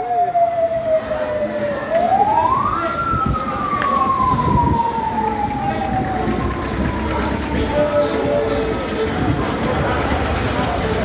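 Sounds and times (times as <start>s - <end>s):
wailing siren: 0.0s - 8.6s.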